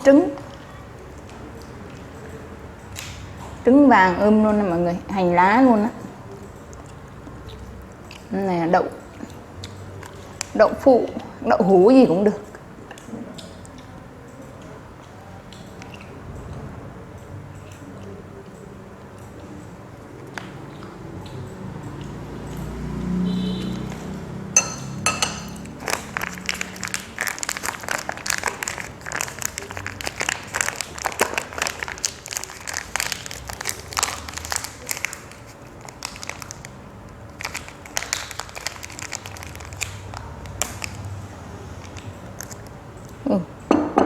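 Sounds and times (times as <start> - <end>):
rice paper and leaves crinkling: 25.6 - 42.8.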